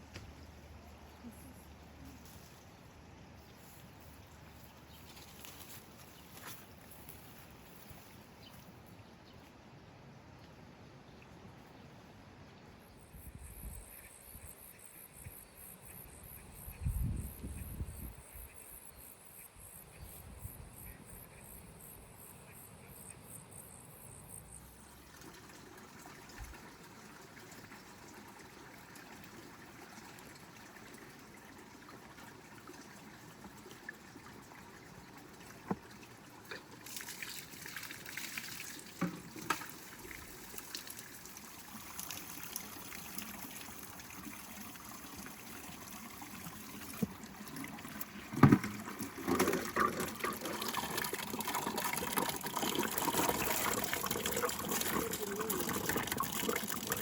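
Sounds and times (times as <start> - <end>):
water trickling and splashing: 0.0 - 9.4, 24.6 - 57.0.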